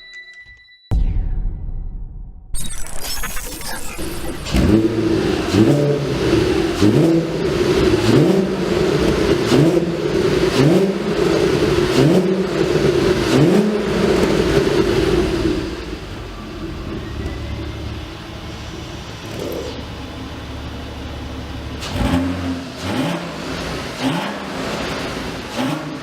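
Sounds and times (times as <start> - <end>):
car engine revving: 3.4 - 26.0.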